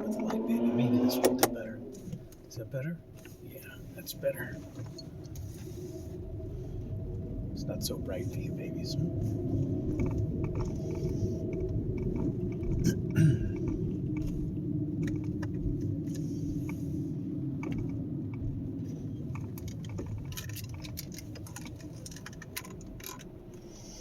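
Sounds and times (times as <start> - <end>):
car engine running: 0.0 - 24.0
light clicks and rattles: 17.6 - 23.7.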